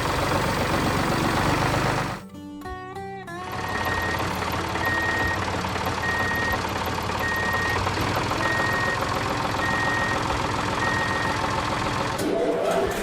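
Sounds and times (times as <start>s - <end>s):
vehicle engine running: 0.0s - 2.2s, 3.4s - 13.0s
reversing alarm beeping: 3.6s - 5.4s, 6.0s - 6.6s, 7.2s - 11.4s.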